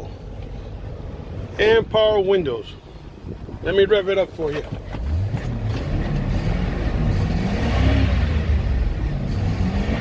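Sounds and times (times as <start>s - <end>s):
truck engine revving: 4.8s - 10.0s.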